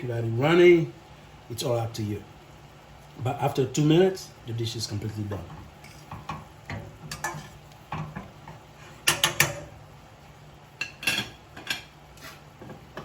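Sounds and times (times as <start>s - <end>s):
metal utensil clinking on a pan: 6.1s - 8.2s, 9.0s - 9.7s, 10.8s - 11.9s.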